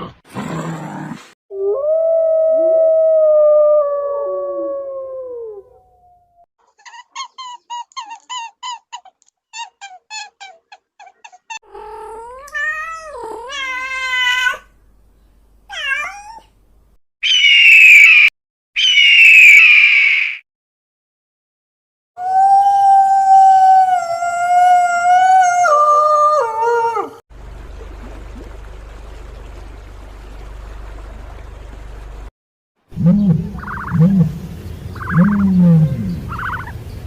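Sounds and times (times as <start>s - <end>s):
shrill screech: 17.2s - 20.4s
animal howl: 22.2s - 27.2s, 33.0s - 34.4s, 35.0s - 36.7s
wavering animal call: 33.0s - 36.9s.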